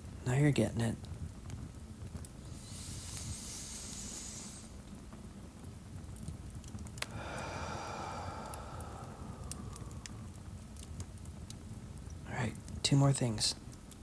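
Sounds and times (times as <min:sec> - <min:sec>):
faint fireplace crackle: 0:00.0 - 0:14.0
person breathing deeply: 0:02.5 - 0:04.8, 0:07.1 - 0:10.4.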